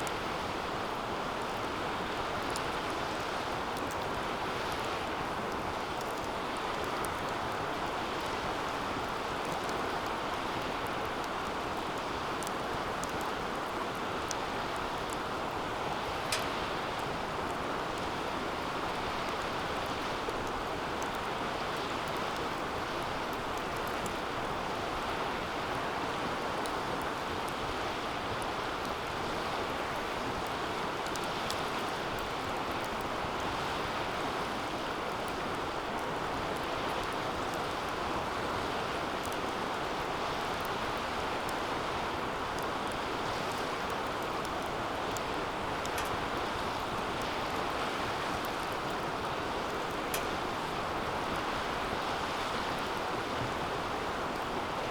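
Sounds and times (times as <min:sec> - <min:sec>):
fire crackles: 0:00.0 - 0:54.9
fire rushing: 0:41.4 - 0:54.5.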